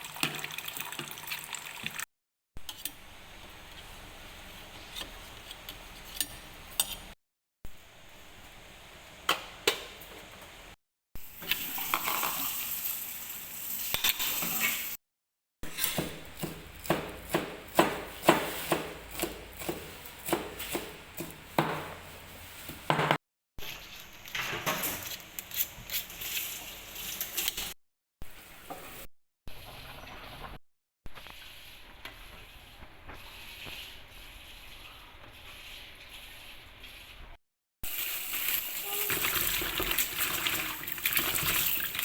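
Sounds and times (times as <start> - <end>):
food sizzling: 11.3 - 15.0, 37.8 - 42.0
knife chopping on board: 16.0 - 22.0.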